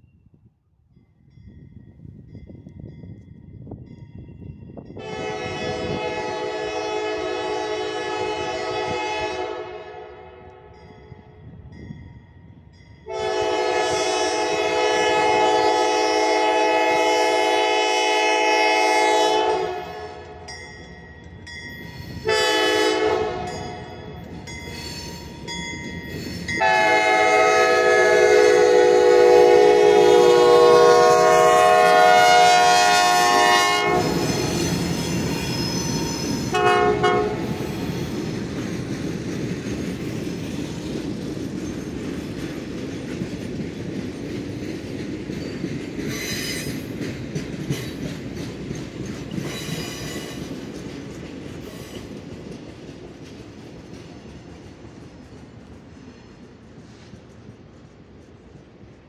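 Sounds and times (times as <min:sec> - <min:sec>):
locomotive air horn blasts: 0:05.0 - 0:10.7, 0:13.1 - 0:20.4, 0:22.2 - 0:23.9, 0:26.6 - 0:34.6, 0:36.4 - 0:37.6
train wheels clattering on rails: 0:12.0 - 0:59.0
wheel squeals: 0:24.5 - 0:26.6, 0:34.2 - 0:36.5.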